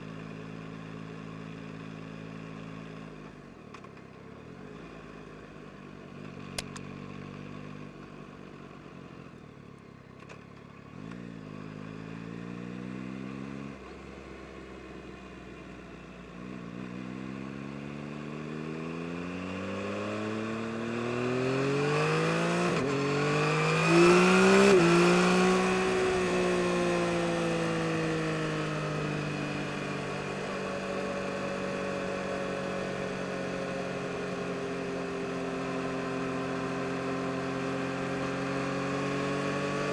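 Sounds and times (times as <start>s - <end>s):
motorcycle engine accelerating: 16.5s - 39.9s.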